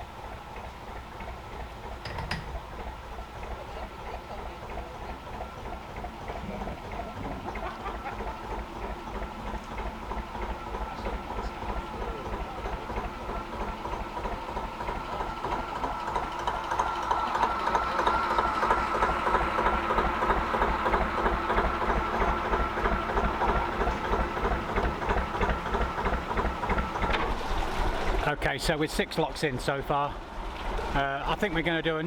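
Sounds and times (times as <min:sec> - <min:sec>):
diesel engine chugging: 0:00.0 - 0:32.0.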